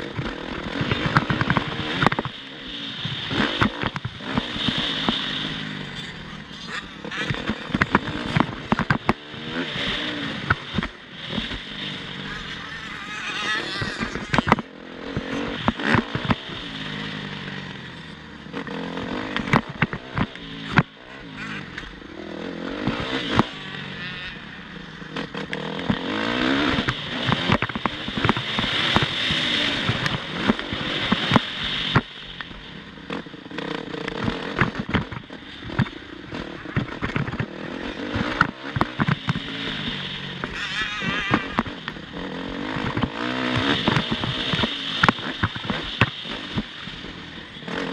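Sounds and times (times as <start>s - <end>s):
motorcycle engines revving: 0.0s - 47.9s
sharp cracks and knocks: 34.0s - 36.0s, 36.6s - 37.5s, 42.8s - 46.8s.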